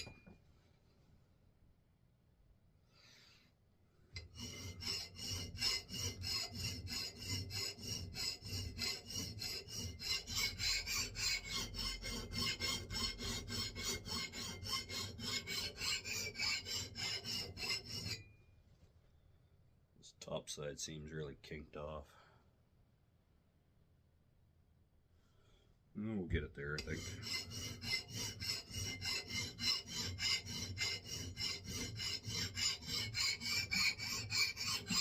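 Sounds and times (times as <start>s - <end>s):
file rasping on steel axe: 4.1s - 18.4s, 26.7s - 35.0s.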